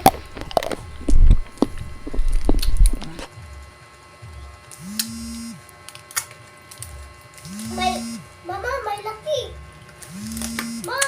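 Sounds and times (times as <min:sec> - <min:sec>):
thumps against microphone: 0:00.0 - 0:03.3
wet mouth eating sounds: 0:00.0 - 0:03.3.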